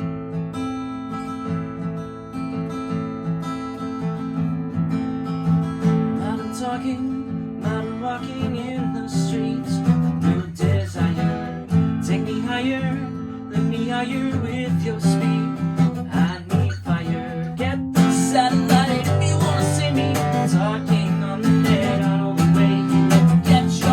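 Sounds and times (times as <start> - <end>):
acoustic guitar strummed and plucked: 0.0 - 23.9.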